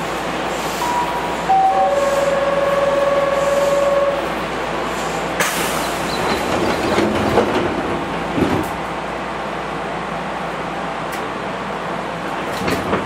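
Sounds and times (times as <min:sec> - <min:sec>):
sharp hiss of air: 0:04.9 - 0:06.1.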